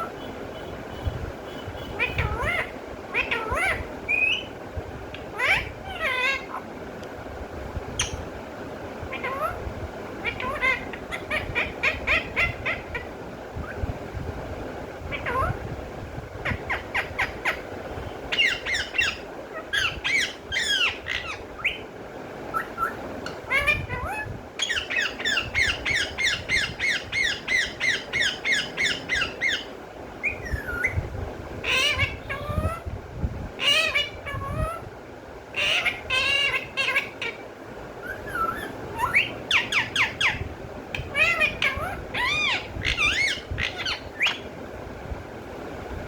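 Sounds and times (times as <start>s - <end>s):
parrot squawking: 1.8s - 4.5s, 5.1s - 6.7s, 9.1s - 9.6s, 10.2s - 13.8s, 15.1s - 15.6s, 16.4s - 21.8s, 22.5s - 31.0s, 31.6s - 32.9s, 33.6s - 34.8s, 35.5s - 44.5s.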